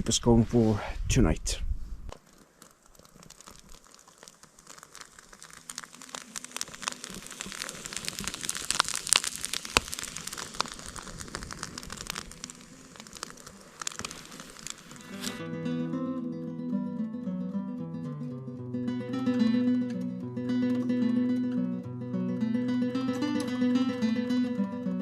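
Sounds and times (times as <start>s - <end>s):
campfire kindling crackling: 0.0s - 15.8s.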